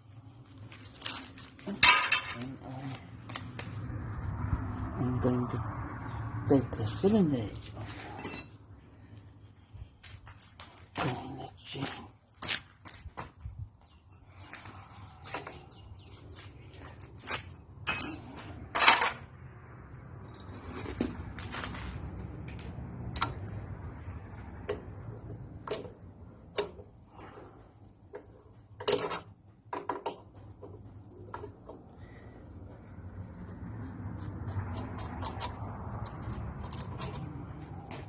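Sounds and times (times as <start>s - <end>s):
metal tools clanking: 1.7s - 2.6s, 8.0s - 8.6s, 17.8s - 19.2s.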